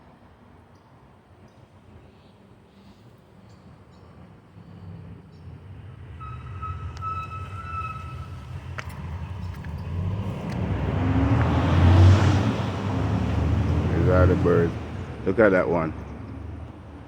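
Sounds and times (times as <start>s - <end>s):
passing vehicle rumble: 5.6s - 17.0s
thin steady whistle: 6.2s - 8.4s.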